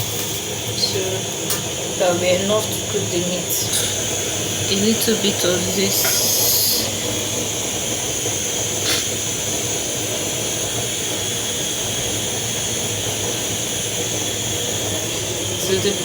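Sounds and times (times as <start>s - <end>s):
gas burner flame hissing: 0.0s - 16.0s.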